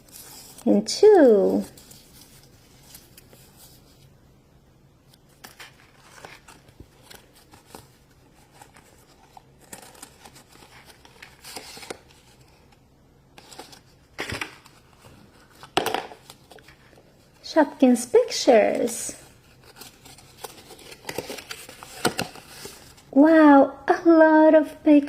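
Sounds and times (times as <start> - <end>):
packaging crinkling and rustling: 5.1 - 17.5, 18.5 - 23.1.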